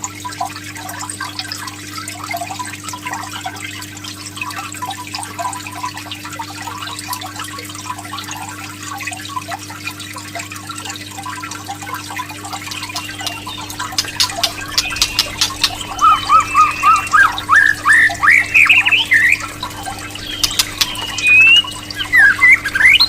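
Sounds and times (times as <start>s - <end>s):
water drips and trickles: 0.0s - 23.0s
steady low hum: 12.6s - 23.0s
sharp clicks: 12.9s - 16.1s.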